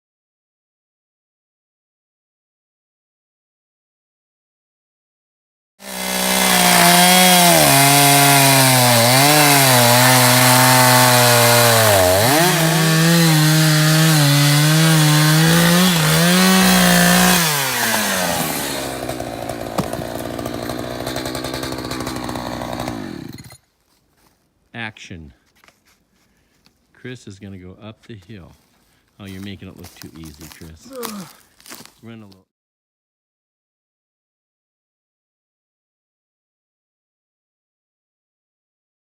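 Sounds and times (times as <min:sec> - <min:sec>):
chainsaw running at high revs: 0:05.8 - 0:23.6.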